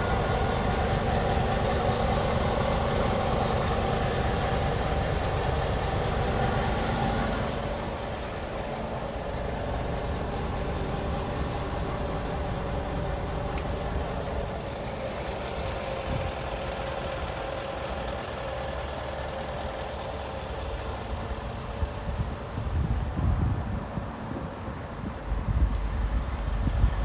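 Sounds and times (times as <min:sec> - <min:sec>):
truck diesel engine idling: 0:00.0 - 0:22.6.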